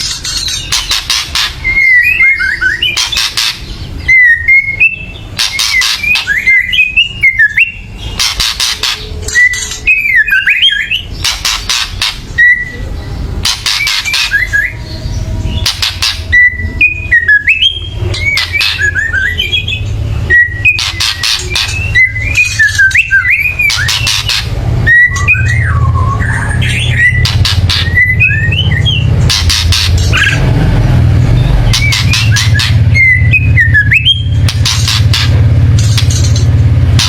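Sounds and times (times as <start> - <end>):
bird rattling calls: 0.0 - 1.9, 2.8 - 3.9, 5.3 - 7.0, 7.6 - 12.4, 13.4 - 14.6, 15.5 - 16.4, 17.5 - 19.9, 20.5 - 24.6, 26.6 - 30.4, 31.6 - 37.0
bird whistled phrases: 0.3 - 30.4, 31.4 - 35.2.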